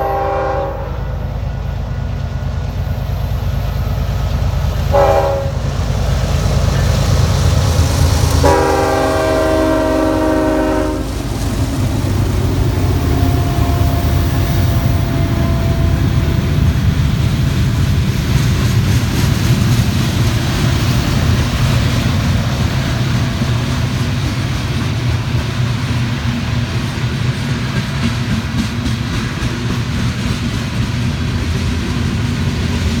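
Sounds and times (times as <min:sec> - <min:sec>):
train horn: 0:00.0 - 0:01.3, 0:04.9 - 0:05.7, 0:08.3 - 0:11.3, 0:12.7 - 0:16.8
diesel locomotive engines rumbling: 0:00.0 - 0:33.0
train wheels on rails: 0:00.0 - 0:33.0.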